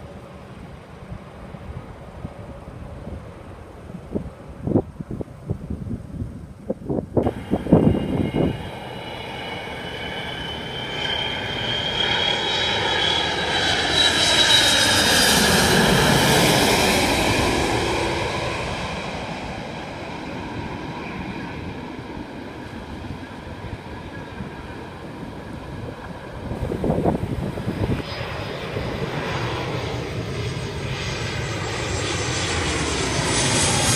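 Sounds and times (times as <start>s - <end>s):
jet airliner flying past: 0.0s - 33.9s
wind buffeting microphone: 1.0s - 10.6s, 14.7s - 29.2s.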